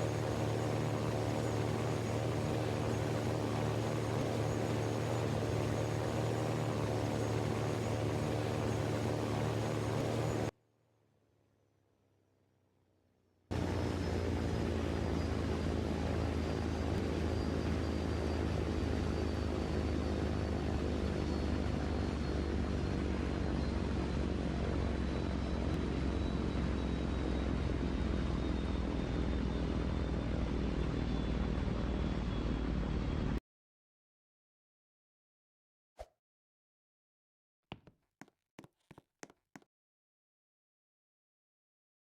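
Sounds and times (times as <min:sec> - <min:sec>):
engine drone: 0:00.0 - 0:10.5, 0:13.5 - 0:33.4.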